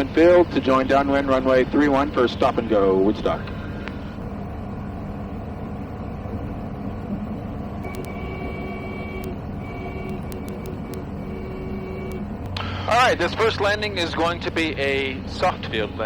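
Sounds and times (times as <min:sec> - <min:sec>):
aircraft engine and propeller drone: 0:00.0 - 0:16.0
clicks: 0:07.8 - 0:08.2, 0:09.2 - 0:09.4, 0:10.0 - 0:11.1, 0:12.0 - 0:12.7.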